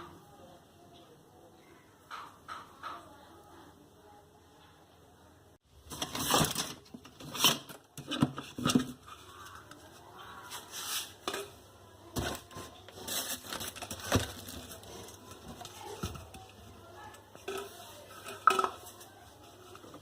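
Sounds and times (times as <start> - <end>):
objects knocking and scraping: 2.0 - 3.2, 5.8 - 20.0.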